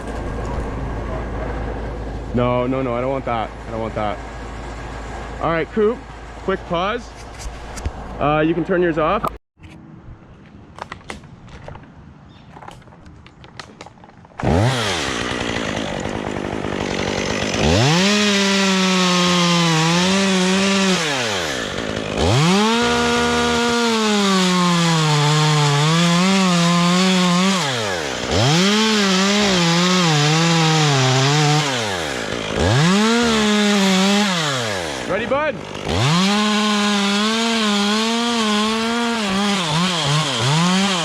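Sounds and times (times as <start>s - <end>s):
chainsaw cutting wood: 13.6s - 41.0s.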